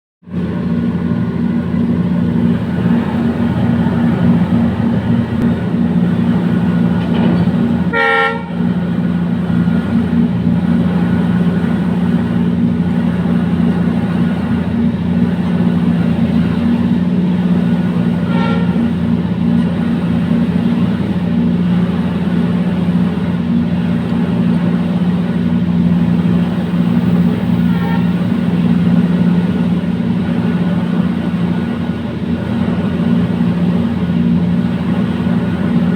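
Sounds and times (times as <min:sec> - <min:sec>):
diesel locomotive engine drone: 0:00.2 - 0:35.9
locomotive horn toot: 0:07.0 - 0:08.9, 0:18.1 - 0:19.2, 0:27.2 - 0:28.7.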